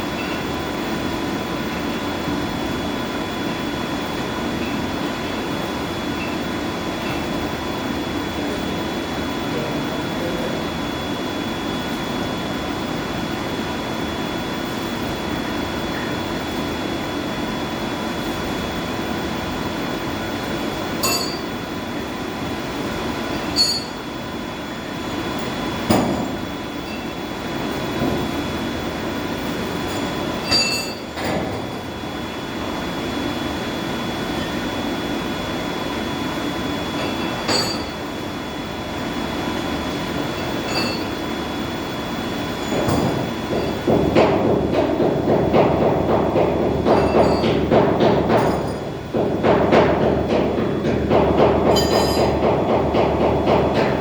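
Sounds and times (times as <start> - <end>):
machinery hum: 0.0 - 54.0
metallic clinks and knocks: 51.7 - 52.4.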